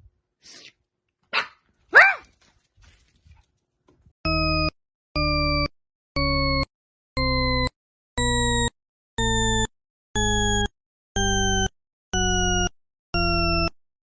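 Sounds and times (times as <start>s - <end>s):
electronic beeps: 4.3s - 13.8s.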